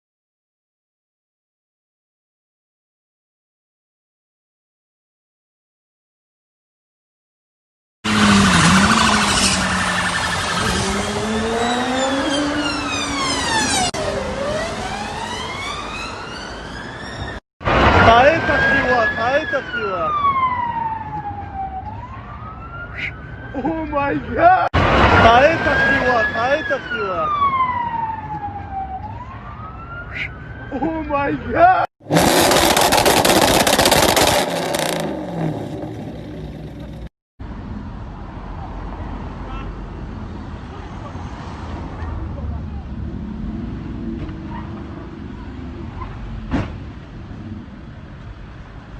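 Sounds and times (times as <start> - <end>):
road and vehicle noise: 8.0 - 48.9
emergency siren wailing: 8.1 - 32.4.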